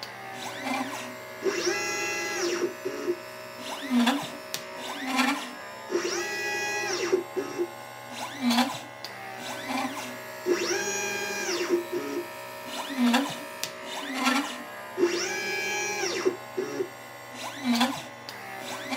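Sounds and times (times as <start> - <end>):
stepper motors whining: 0.0 - 18.9.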